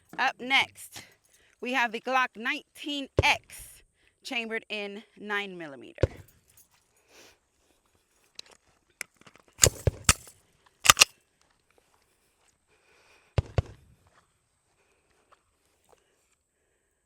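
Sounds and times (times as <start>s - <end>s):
pistol shots: 9.6s - 10.3s, 10.9s - 11.1s.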